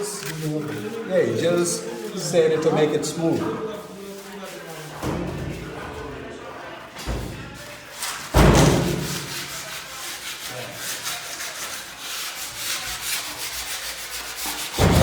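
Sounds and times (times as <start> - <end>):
sandpaper rubbing: 3.0 - 5.1, 7.6 - 15.0.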